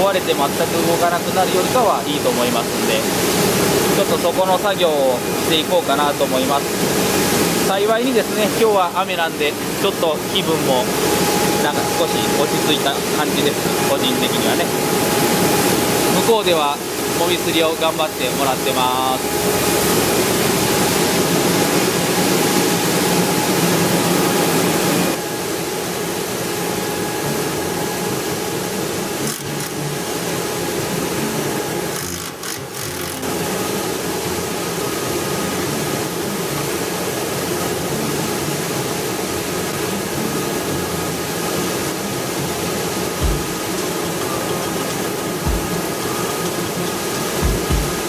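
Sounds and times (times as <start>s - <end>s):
husking machine whirring and rattling: 0.0s - 25.3s, 26.6s - 34.4s, 42.7s - 48.0s.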